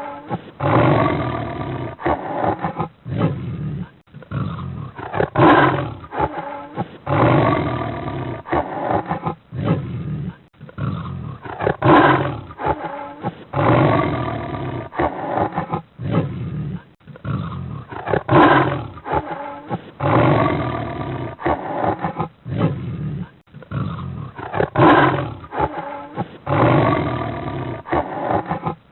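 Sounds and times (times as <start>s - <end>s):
big cat roaring: 0.0s - 28.8s.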